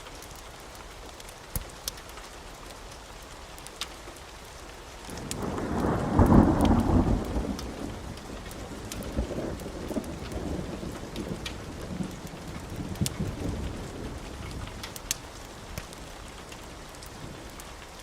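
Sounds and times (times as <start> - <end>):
steady rain: 0.0 - 18.0
thunder rolling: 5.2 - 15.0.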